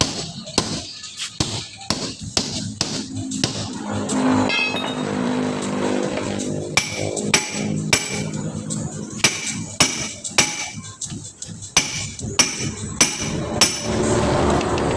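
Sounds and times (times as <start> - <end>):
hammer striking truck wheel: 0.0 - 3.8, 6.1 - 8.6, 9.2 - 11.0, 11.8 - 14.3.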